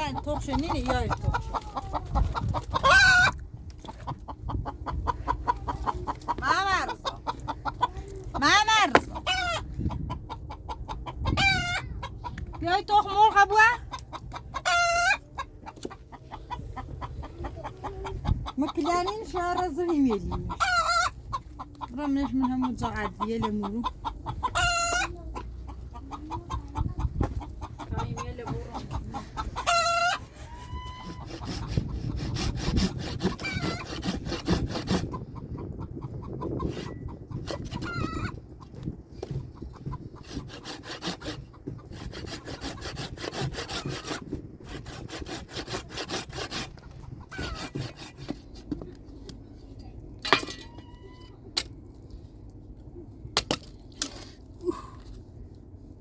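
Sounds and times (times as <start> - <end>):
chickens clucking: 0.0 - 49.6.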